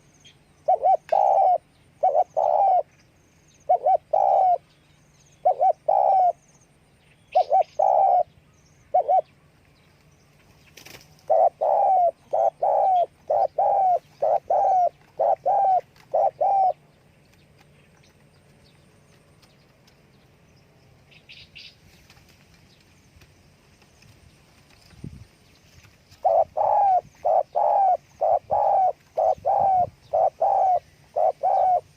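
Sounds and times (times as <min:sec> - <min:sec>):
dove cooing: 0:00.6 - 0:02.9, 0:03.7 - 0:04.7, 0:05.4 - 0:06.4, 0:07.3 - 0:09.3, 0:11.2 - 0:16.9, 0:26.2 - 0:31.9.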